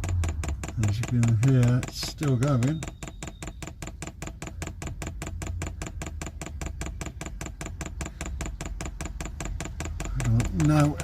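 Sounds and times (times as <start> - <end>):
fuel pump clicking rapidly: 0.0 - 11.0.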